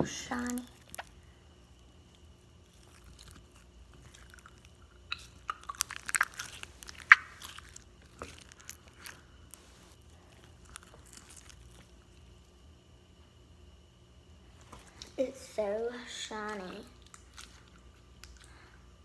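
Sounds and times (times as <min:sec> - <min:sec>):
slime crackling and popping: 0:00.0 - 0:12.5.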